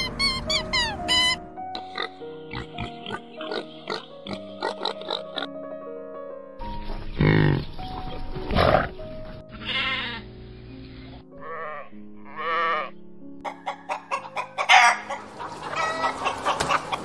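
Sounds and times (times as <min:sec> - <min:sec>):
quavering animal call: 0:00.0 - 0:05.5, 0:11.4 - 0:16.9
background music: 0:00.0 - 0:17.0
sheep bleating: 0:09.5 - 0:10.3, 0:11.4 - 0:12.9
hens clucking and squawking: 0:13.4 - 0:17.0.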